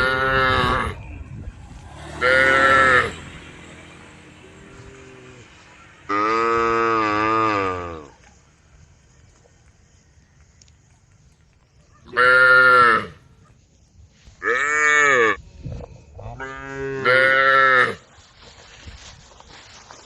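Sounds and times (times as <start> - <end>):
cows mooing: 0.0 - 1.0, 2.1 - 3.7, 4.5 - 8.1, 16.4 - 18.0.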